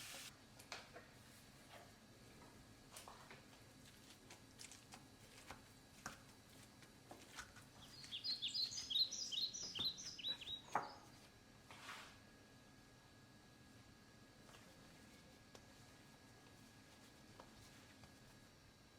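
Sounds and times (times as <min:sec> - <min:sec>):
small bird twittering: 0:07.8 - 0:11.1.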